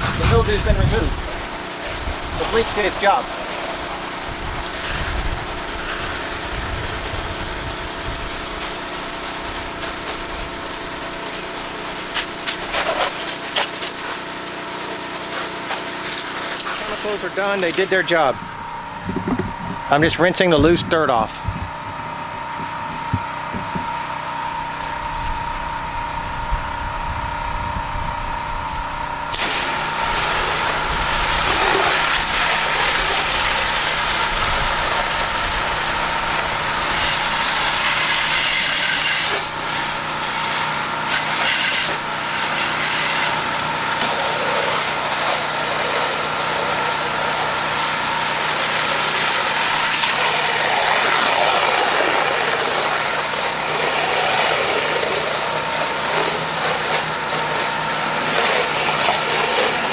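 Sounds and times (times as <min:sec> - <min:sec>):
high-pressure water spray hissing: 0:00.0 - 0:18.3, 0:29.3 - 0:59.9
pressure washer engine running: 0:00.0 - 0:59.9.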